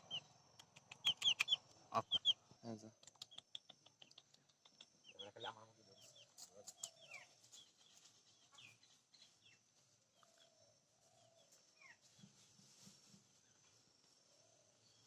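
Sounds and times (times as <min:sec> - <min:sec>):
faint downward bird chirps: 0:00.0 - 0:02.4.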